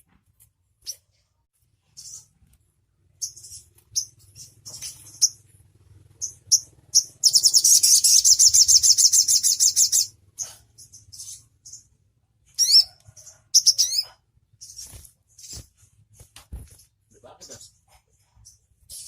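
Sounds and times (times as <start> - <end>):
songbird chirps and trill: 0.8 - 16.0.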